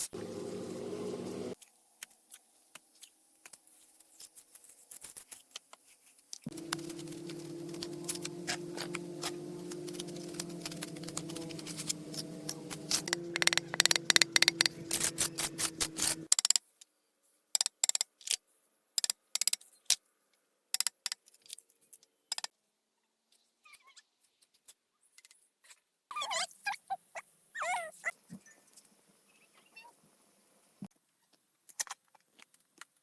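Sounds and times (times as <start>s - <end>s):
motor hum: 0.0s - 1.6s, 6.5s - 16.3s.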